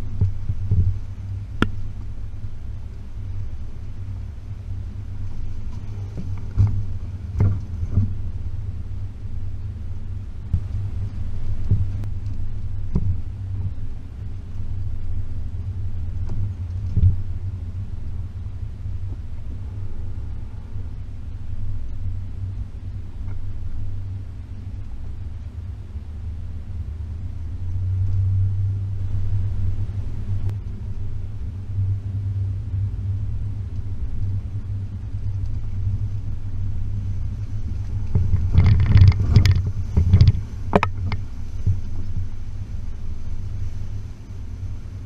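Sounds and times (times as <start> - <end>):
car engine rumbling: 0.0 - 45.0
knocks and rattles: 37.7 - 41.9.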